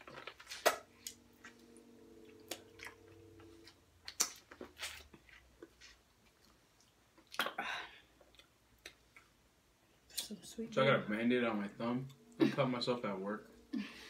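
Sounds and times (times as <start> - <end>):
steady low hum: 0.0 - 5.8, 7.6 - 14.0
chewing and lip smacks: 4.0 - 7.5.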